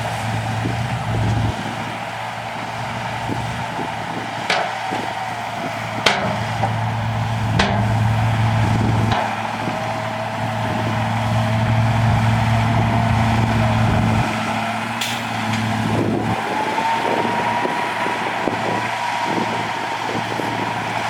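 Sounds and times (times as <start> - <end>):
diesel engine running: 0.0 - 21.0
thin rising whine: 4.9 - 18.1.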